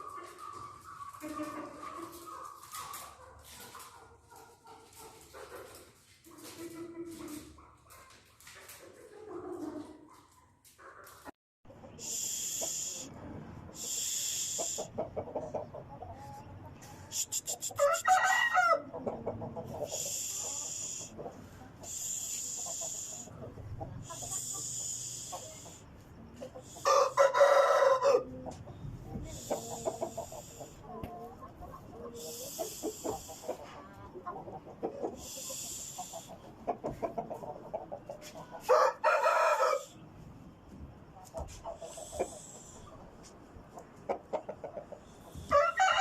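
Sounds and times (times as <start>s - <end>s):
chickens clucking: 0.0s - 46.0s
high hiss: 12.0s - 13.1s, 13.8s - 14.9s, 19.9s - 21.2s, 21.8s - 23.3s, 35.2s - 36.4s
roosters crowing: 17.7s - 21.2s, 26.6s - 28.4s, 38.6s - 40.0s, 45.4s - 46.0s.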